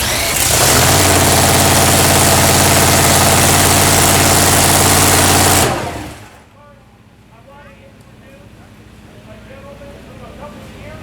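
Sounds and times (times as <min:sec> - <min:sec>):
engine running loud: 0:00.0 - 0:06.4.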